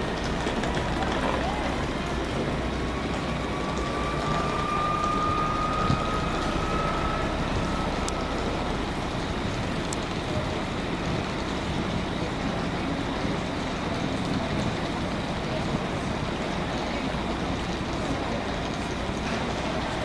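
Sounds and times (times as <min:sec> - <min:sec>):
rising whine: 0:00.0 - 0:13.8
train rumble and hiss: 0:00.0 - 0:20.0.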